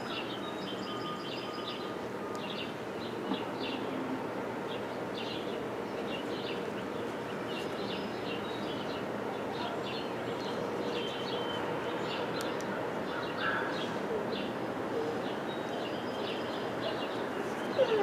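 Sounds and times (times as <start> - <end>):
small birds chirping: 4.7 - 18.0.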